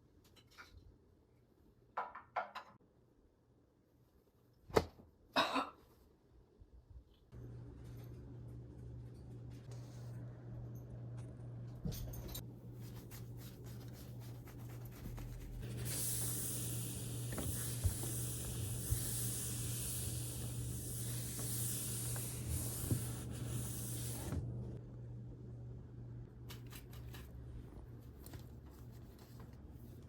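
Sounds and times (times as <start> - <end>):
steady hiss: 15.6 - 24.4.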